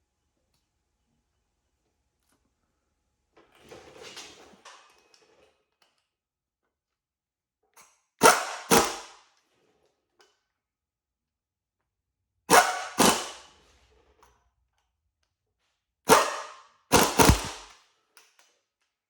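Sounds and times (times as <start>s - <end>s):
dog barking: 12.5s - 13.0s, 16.1s - 16.6s.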